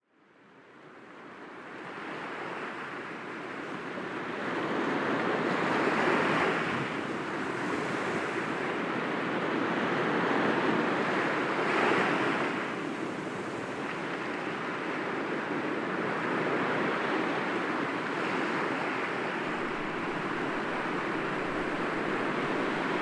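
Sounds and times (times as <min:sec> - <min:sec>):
waves breaking against rocks: 0:18.1 - 0:23.0.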